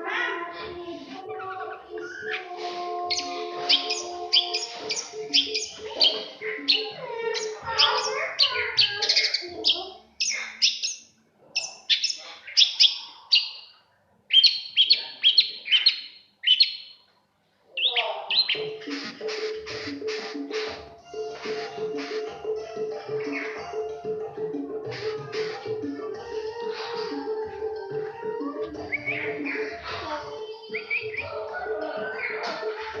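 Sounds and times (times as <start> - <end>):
background music with steady tones: 0.0 - 9.1, 18.3 - 33.0
songbird chirping rapidly: 0.0 - 17.1, 17.7 - 33.0.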